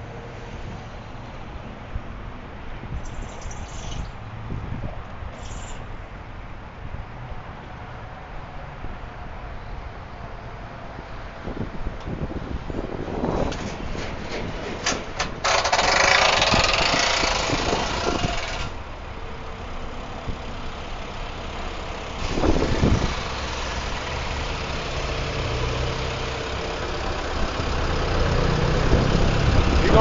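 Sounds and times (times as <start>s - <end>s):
vehicle engine idling: 15.4s - 30.0s.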